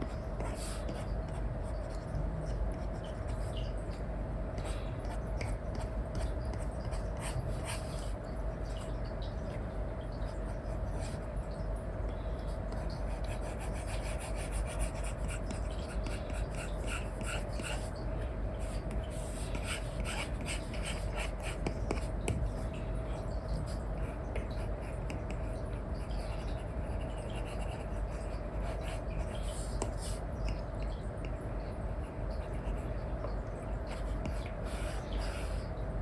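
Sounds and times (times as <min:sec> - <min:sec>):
low constant hum: 0:00.0 - 0:36.0
stylus scratching on a screen: 0:12.7 - 0:18.0, 0:18.7 - 0:22.6, 0:26.2 - 0:30.2.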